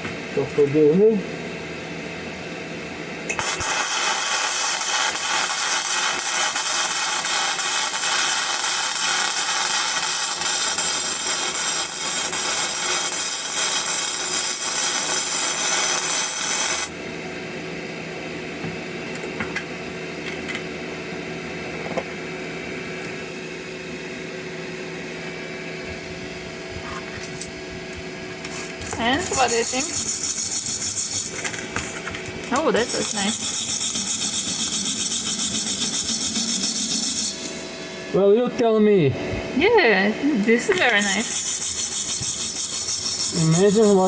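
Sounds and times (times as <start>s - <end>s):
arc welding: 3.3s - 17.0s, 28.3s - 37.8s, 40.4s - 44.0s.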